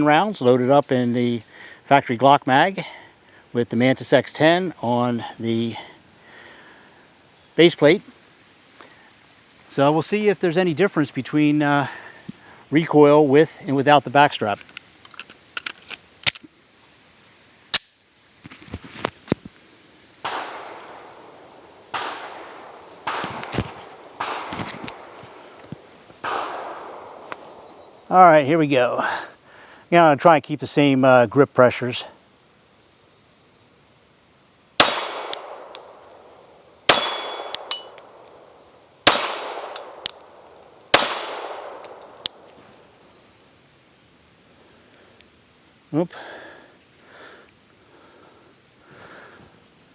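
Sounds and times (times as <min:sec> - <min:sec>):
gunshots with echoing tails: 0:20.2 - 0:25.2, 0:26.2 - 0:28.0, 0:34.8 - 0:38.5, 0:39.1 - 0:42.5
single sharp crack: 0:34.8 - 0:36.3
light clinks: 0:34.8 - 0:42.7
small metallic clicks: 0:36.9 - 0:38.5, 0:39.1 - 0:42.6.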